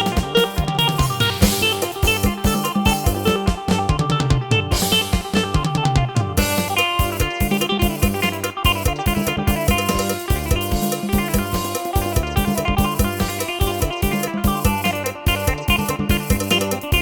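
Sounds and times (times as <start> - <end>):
drum-kit accompaniment: 0.0 - 17.0
keyboard plucked-string melody: 0.0 - 17.0.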